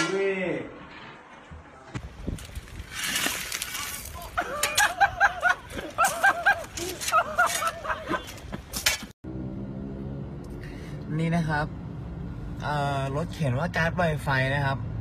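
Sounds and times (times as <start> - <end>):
person laughing hard: 4.2 - 8.7.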